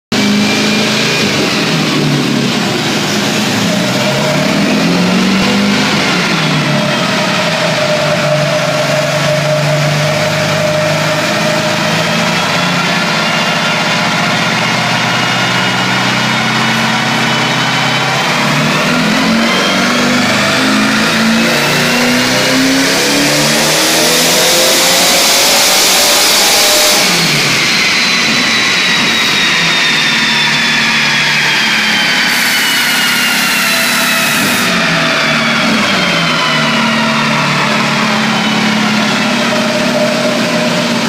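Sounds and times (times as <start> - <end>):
dune buggy engine running: 34.7 - 41.0.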